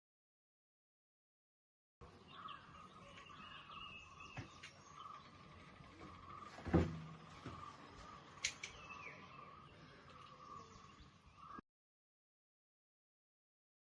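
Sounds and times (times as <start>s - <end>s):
birds chirping: 2.0s - 11.6s
dull thump: 6.6s - 7.6s.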